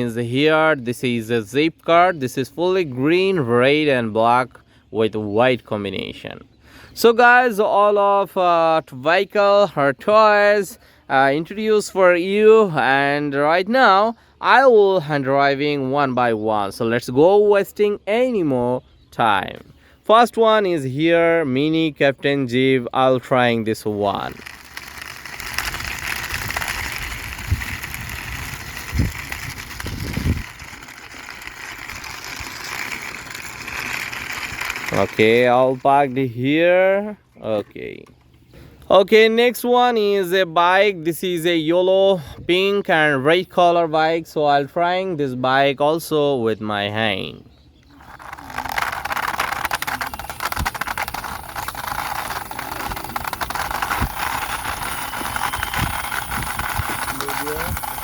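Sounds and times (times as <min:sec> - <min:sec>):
toy jeep bumping on concrete: 0:24.1 - 0:36.0, 0:48.0 - 0:58.0.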